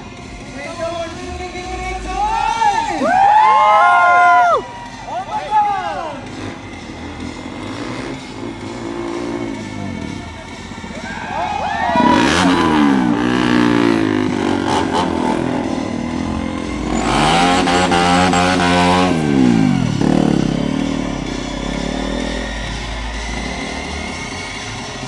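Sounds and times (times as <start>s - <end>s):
motorcycle engine revving: 6.2s - 11.0s, 11.8s - 25.0s.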